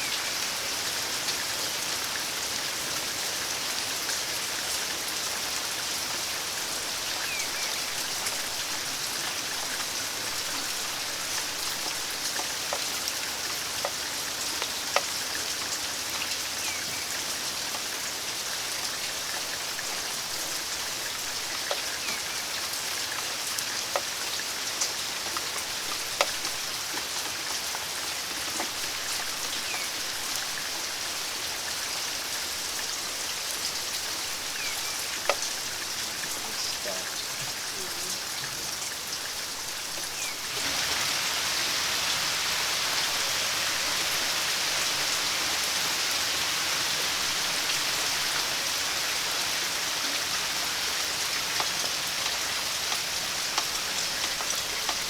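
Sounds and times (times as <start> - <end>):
steady rain falling: 0.0 - 55.0
raindrops tapping on a surface: 6.1 - 18.0, 18.7 - 30.8, 33.6 - 41.2, 49.2 - 55.0.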